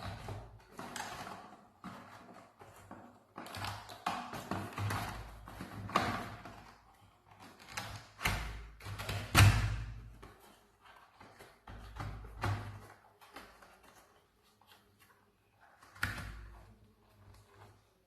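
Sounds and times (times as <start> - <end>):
knocks of objects being handled: 0.0 - 14.1.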